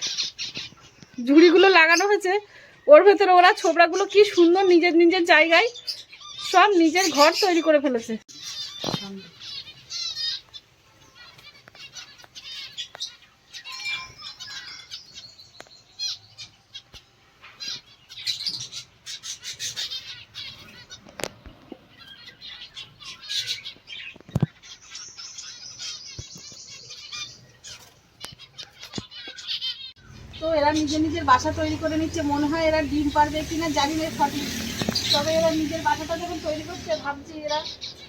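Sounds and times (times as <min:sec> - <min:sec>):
small birds chirping: 0:00.0 - 0:38.0
wings fluttering: 0:08.6 - 0:09.3, 0:27.6 - 0:38.0.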